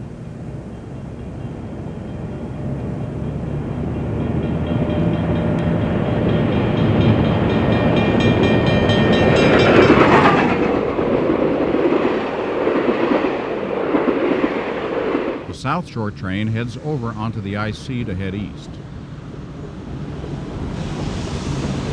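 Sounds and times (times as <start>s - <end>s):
steam locomotive passing: 0.0s - 21.9s
train cars rolling by: 0.0s - 21.9s.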